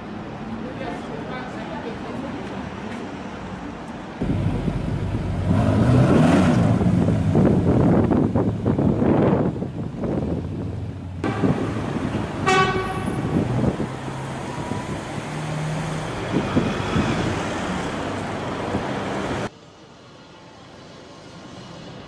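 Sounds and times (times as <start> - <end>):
car engine accelerating: 4.2 - 8.2
car horn toot: 11.2 - 11.7, 12.4 - 13.4.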